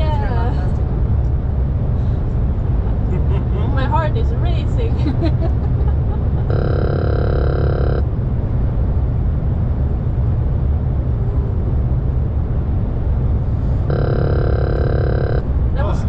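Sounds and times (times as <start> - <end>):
road and wind rumble in cab: 0.0 - 16.0
electronic warning tone: 6.5 - 8.1, 13.9 - 15.5.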